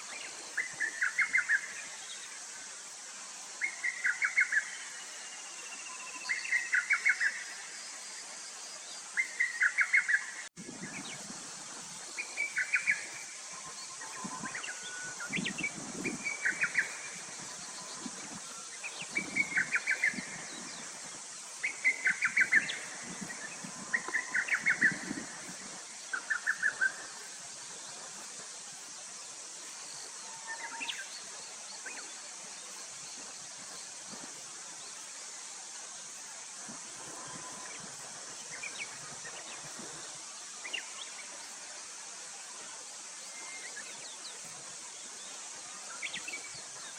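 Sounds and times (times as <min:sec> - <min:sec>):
steady high hiss: 0:00.0 - 0:46.9.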